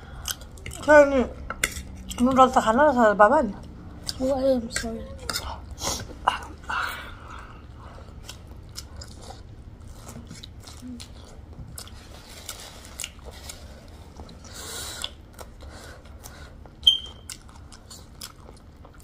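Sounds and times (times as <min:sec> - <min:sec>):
sharp ringing tone: 0:16.8 - 0:17.3.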